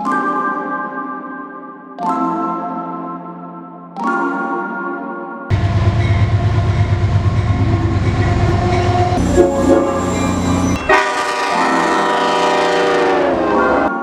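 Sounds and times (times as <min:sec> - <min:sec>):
diesel locomotive engine rumble: 0:05.5 - 0:13.9
locomotive horn: 0:07.7 - 0:14.0.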